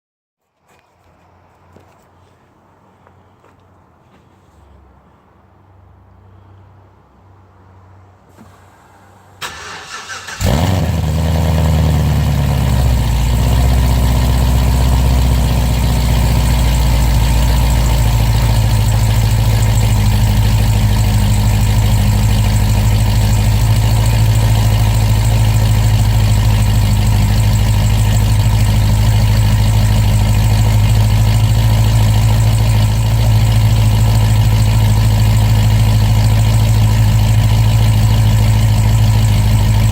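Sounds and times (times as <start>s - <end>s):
car engine starting and idling: 8.3s - 39.9s.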